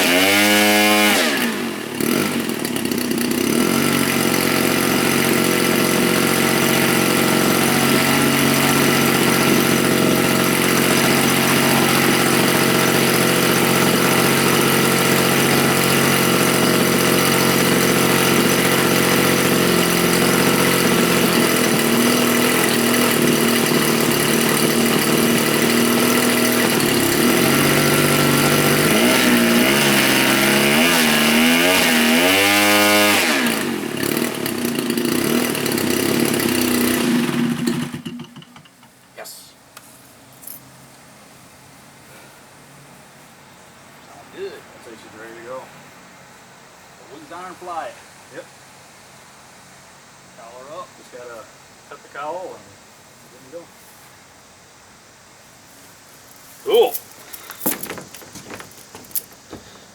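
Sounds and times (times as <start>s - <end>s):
model airplane gas engine: 0.0s - 39.5s, 56.7s - 59.9s.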